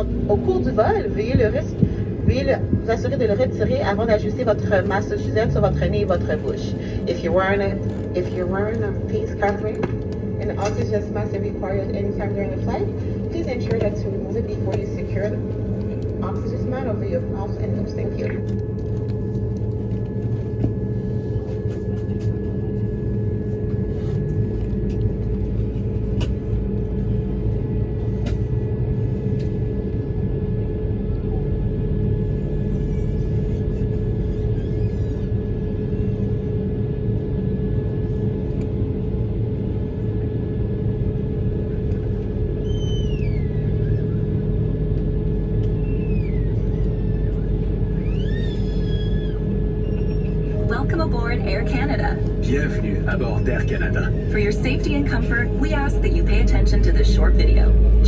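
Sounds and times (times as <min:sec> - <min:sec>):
thin steady whine: 0:00.0 - 0:30.6, 0:49.4 - 0:58.0
aircraft cabin rumble and hum: 0:00.0 - 0:58.0.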